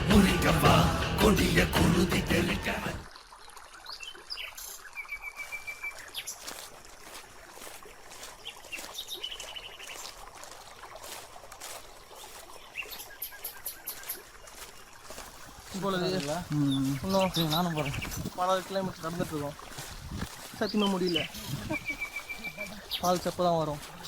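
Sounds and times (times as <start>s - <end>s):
faint water trickle: 3.1s - 24.0s
birds chirping in trills: 15.5s - 24.0s.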